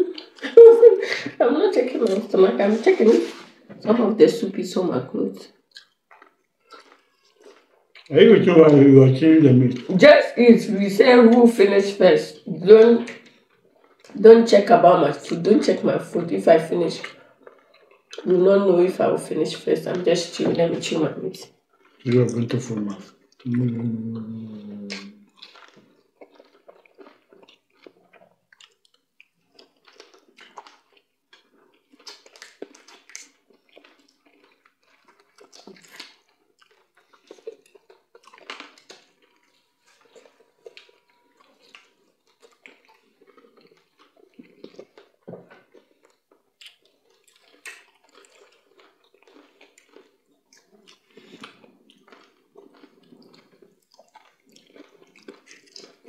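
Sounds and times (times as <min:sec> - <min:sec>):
chewing and mouth clicks: 0:00.0 - 0:00.7, 0:05.5 - 0:08.8, 0:12.3 - 0:18.4, 0:19.4 - 0:56.0
fingers squishing wet food: 0:05.5 - 0:08.9, 0:21.7 - 0:56.0.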